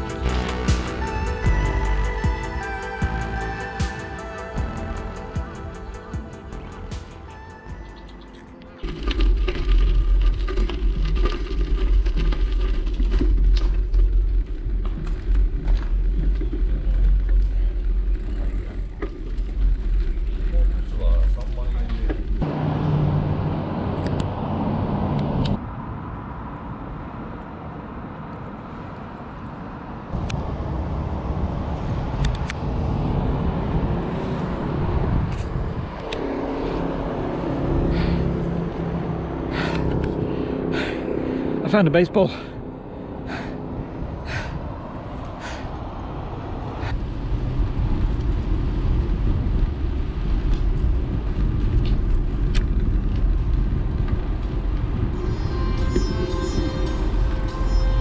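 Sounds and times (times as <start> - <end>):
steady low hum: 0.0 - 8.7
bicycle ride rumble: 0.0 - 58.0
wind buffeting microphone: 8.9 - 41.7, 42.5 - 58.0
bicycle tyre noise: 46.4 - 57.8.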